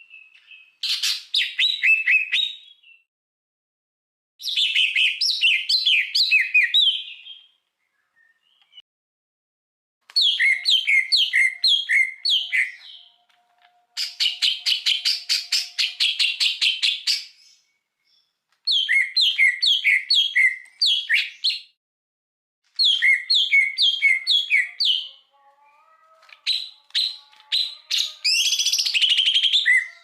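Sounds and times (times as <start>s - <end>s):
songbird singing: 4.4s - 8.8s, 10.2s - 21.7s, 22.8s - 30.0s.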